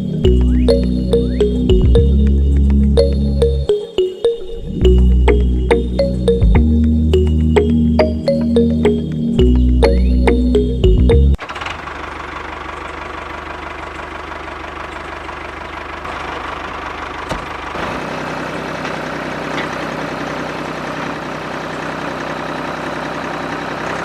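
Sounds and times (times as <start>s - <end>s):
small engine running: 11.4s - 24.0s.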